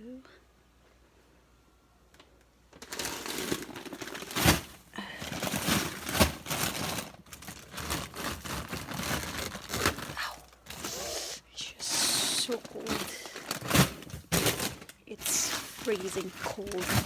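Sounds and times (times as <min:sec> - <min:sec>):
plastic food packages crinkling: 0:02.7 - 0:17.0
frozen items knocking together: 0:02.8 - 0:11.1, 0:11.8 - 0:17.0.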